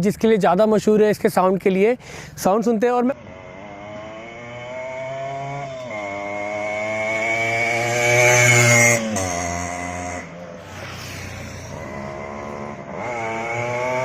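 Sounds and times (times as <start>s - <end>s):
two-stroke engine revving: 3.2s - 14.0s.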